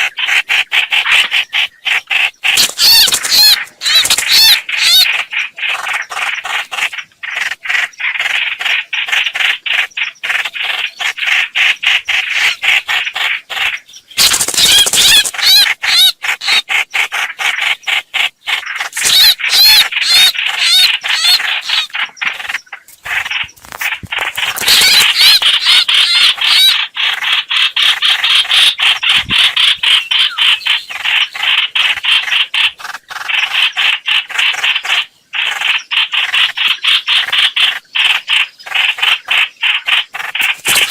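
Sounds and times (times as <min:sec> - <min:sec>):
bird rasping call notes: 0:18.9 - 0:31.5.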